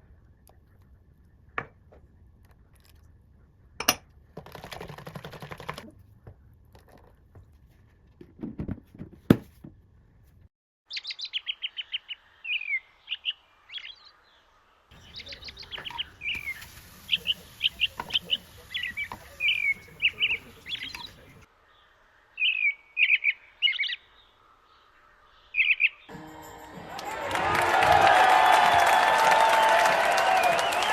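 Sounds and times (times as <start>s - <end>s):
songbird chirping: 10.9s - 26.4s.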